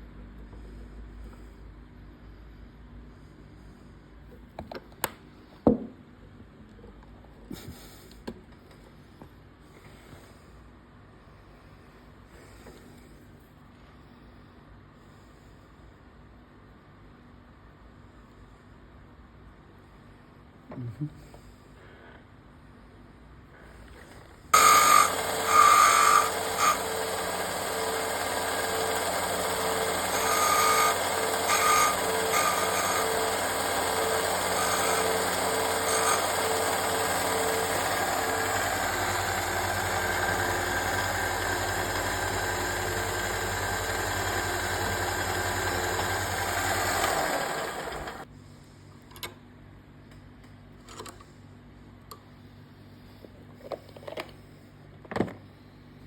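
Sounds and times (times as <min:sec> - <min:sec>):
electric sander running: 0:24.6 - 0:48.2.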